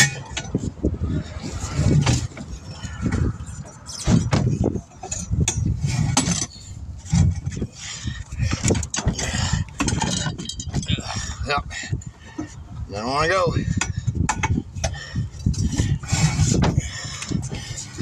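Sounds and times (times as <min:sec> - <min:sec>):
low rumble: 0:00.0 - 0:12.9
metal tools clinking on a wheel: 0:01.9 - 0:07.6, 0:08.6 - 0:12.6.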